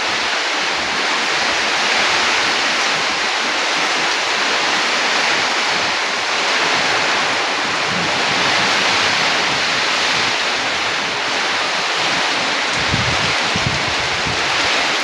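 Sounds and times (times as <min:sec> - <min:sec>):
heavy rain and wind: 0:00.0 - 0:15.0.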